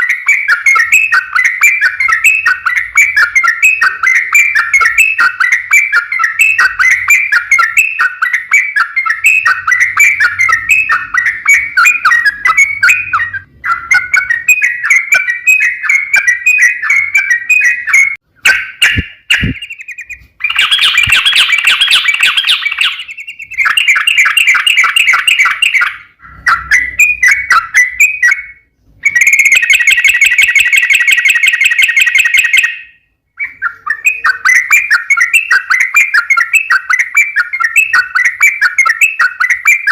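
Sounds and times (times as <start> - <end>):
bulbul singing chattering notes: 0.0 - 39.9.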